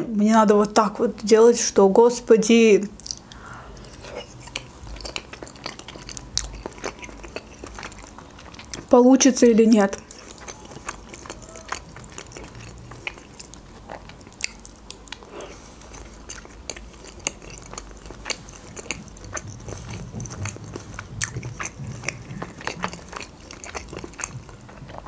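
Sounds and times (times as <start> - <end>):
wet mouth clicks and smacks: 3.0 - 8.0
chewing dumplings: 3.0 - 25.0.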